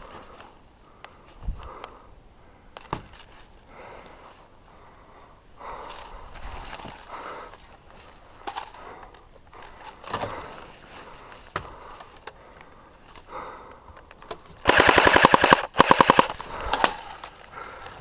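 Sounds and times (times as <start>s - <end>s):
knocks and rustling of movement: 2.7s - 4.3s, 5.7s - 14.7s
airsoft gun firing bursts: 14.6s - 16.5s.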